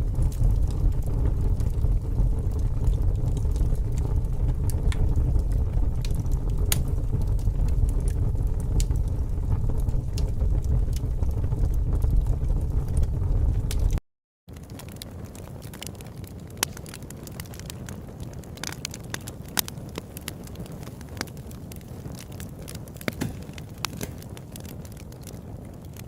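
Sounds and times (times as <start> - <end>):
fire crackling: 0.0 - 26.0
sharp pops and snaps: 2.5 - 9.0, 13.7 - 17.8, 18.4 - 26.0.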